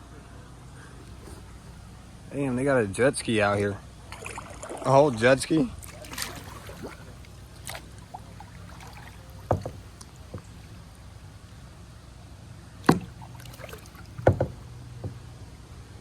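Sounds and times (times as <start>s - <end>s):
low steady hum: 0.0s - 16.0s
paddle knocking against kayak: 5.8s - 11.6s, 12.8s - 15.3s.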